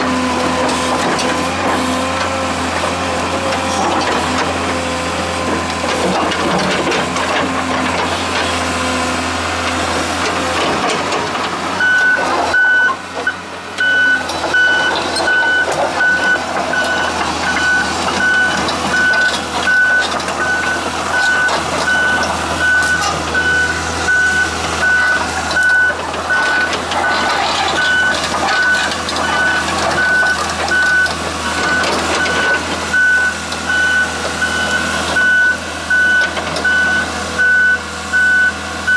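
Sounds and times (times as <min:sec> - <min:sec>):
excavator diesel engine humming: 0:00.0 - 0:38.9
travel alarm beeping: 0:11.8 - 0:38.9.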